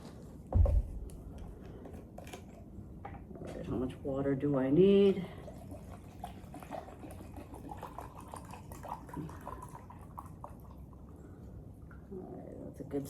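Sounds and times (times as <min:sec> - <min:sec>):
water pouring into a cup: 0:05.2 - 0:12.1
faint water drips and splashes: 0:05.2 - 0:12.8.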